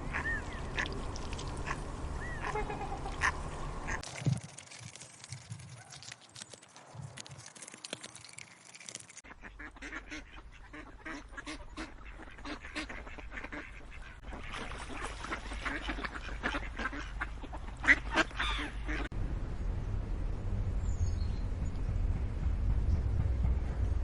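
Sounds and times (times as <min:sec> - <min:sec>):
ducks quacking: 0:00.0 - 0:01.0, 0:01.6 - 0:04.0, 0:09.2 - 0:19.1
geese honking: 0:09.4 - 0:19.1.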